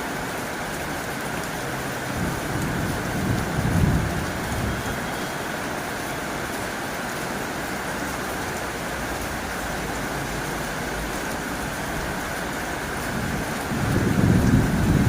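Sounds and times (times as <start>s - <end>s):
heavy rain on a tin roof: 0.0s - 15.0s.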